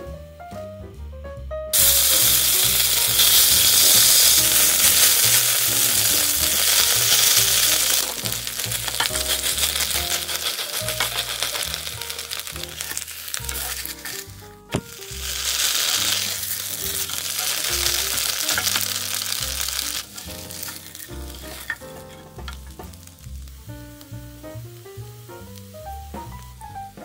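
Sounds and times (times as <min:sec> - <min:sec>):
pancake sizzling in hot oil: 0:01.8 - 0:27.0
spatula scraping a pan: 0:01.9 - 0:14.4, 0:15.0 - 0:22.6.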